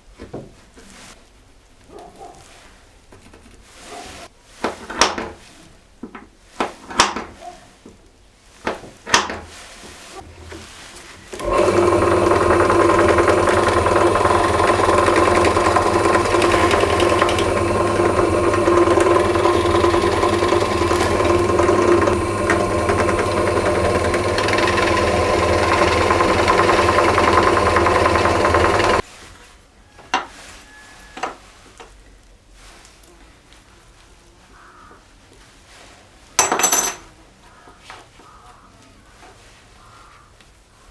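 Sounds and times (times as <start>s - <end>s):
electric power tool running: 10.2s - 29.0s.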